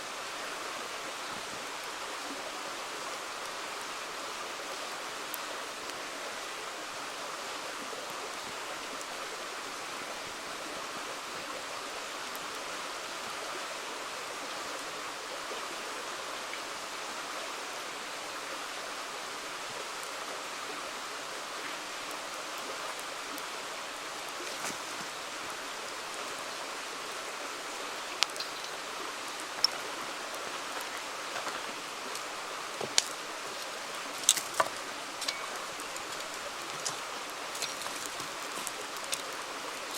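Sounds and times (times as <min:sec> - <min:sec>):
river water flowing: 0:00.0 - 0:39.9
campfire popping: 0:27.7 - 0:39.9.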